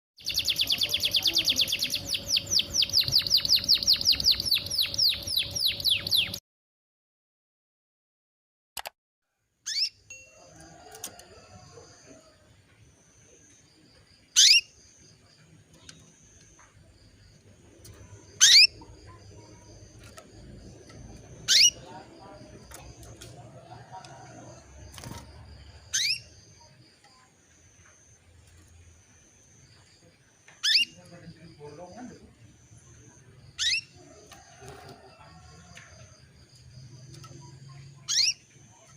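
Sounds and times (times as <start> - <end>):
canary chirping: 0.2 - 6.4, 9.6 - 10.0, 14.3 - 27.2, 30.6 - 32.0, 33.4 - 34.1, 35.3 - 38.9
canary upswept call: 14.4 - 14.8, 18.4 - 18.9, 21.4 - 21.9, 25.8 - 26.4, 33.6 - 34.9, 38.1 - 38.4.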